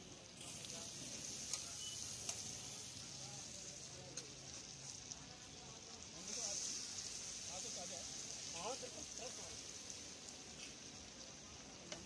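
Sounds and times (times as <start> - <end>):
fish sizzling in oil: 0.0 - 12.0
steel bowl clicking on griddle: 1.4 - 2.5.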